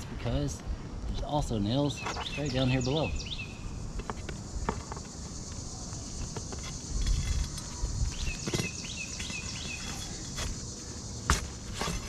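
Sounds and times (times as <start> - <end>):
knocks and scrapes on shingle roof: 6.2 - 12.0.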